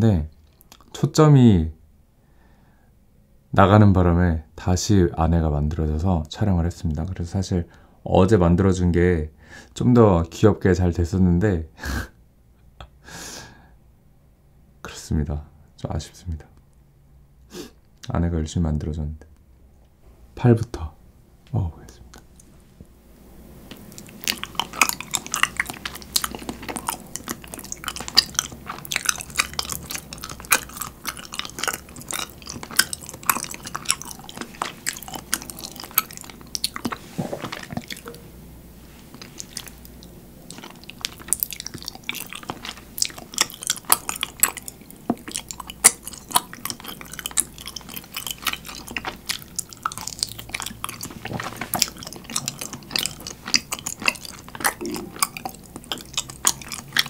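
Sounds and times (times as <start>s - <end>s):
wet sticky chewing: 23.7s - 57.0s.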